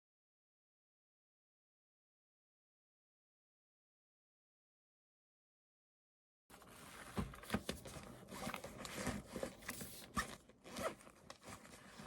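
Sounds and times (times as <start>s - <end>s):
rustling and scraping: 6.5s - 12.0s.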